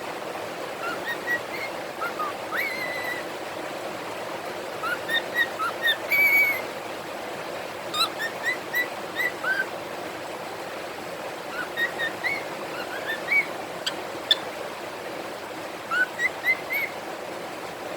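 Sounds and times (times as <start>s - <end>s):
steady background hiss: 0.0s - 17.9s
cockatiels whistling: 0.8s - 3.2s, 4.8s - 6.7s, 7.9s - 9.7s, 11.5s - 14.4s, 15.9s - 16.9s.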